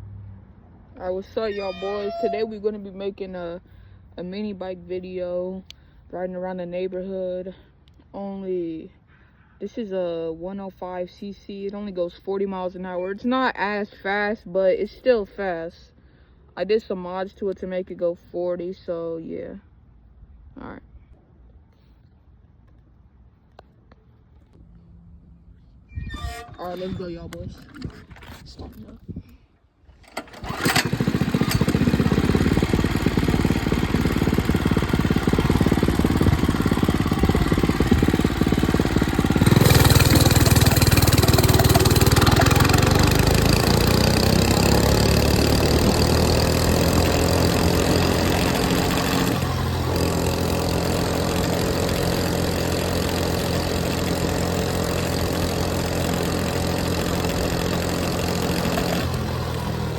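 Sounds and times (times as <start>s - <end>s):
mini bike engine starting and idling: 1.0s - 2.8s, 29.9s - 59.9s.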